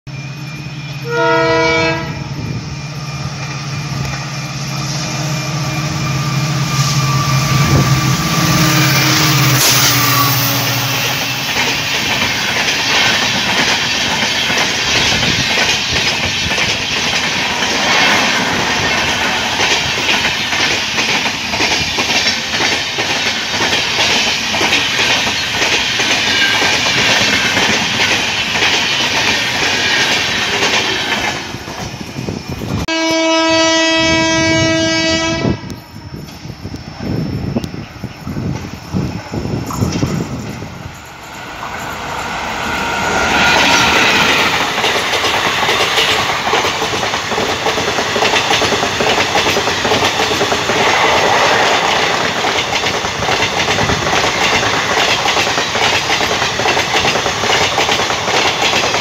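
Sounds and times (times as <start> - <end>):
locomotive hum: 0.1 - 59.0
train rumble: 0.1 - 59.0
locomotive horn blast: 0.9 - 2.6, 5.1 - 11.5, 32.9 - 35.8
train wheels clacking on rail joints: 6.7 - 32.8, 38.4 - 42.2, 42.8 - 59.0.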